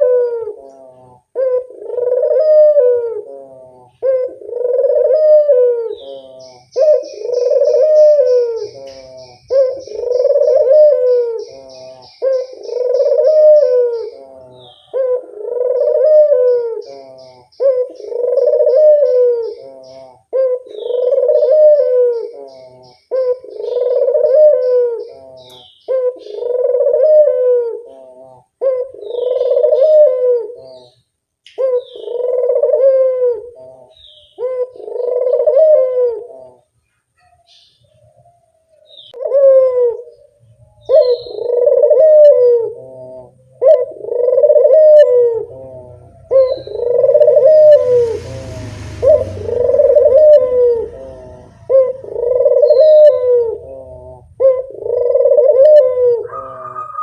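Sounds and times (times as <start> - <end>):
dove cooing: 0.0 - 57.0
small birds chirping: 0.0 - 57.0
hiss with low rumble: 45.4 - 52.5.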